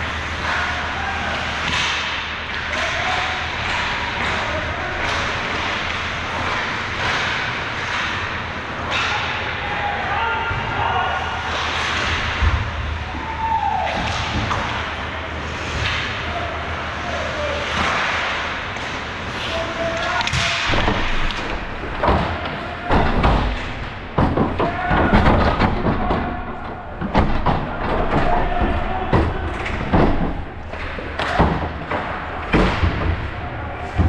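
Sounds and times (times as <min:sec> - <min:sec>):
players hitting the boards: 0:00.0 - 0:09.6, 0:17.4 - 0:34.0
puck and sticks thumping and clacking: 0:00.0 - 0:09.7, 0:11.4 - 0:13.0, 0:13.8 - 0:16.3, 0:17.2 - 0:34.0.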